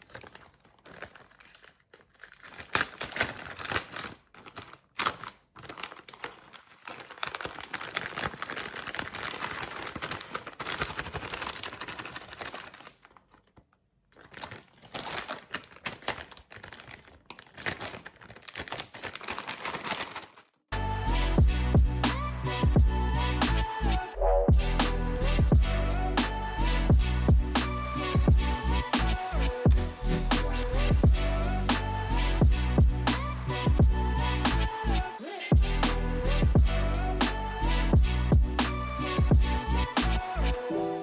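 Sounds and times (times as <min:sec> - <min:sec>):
plastic packaging crinkling: 0:00.0 - 0:20.7, 0:28.7 - 0:31.0.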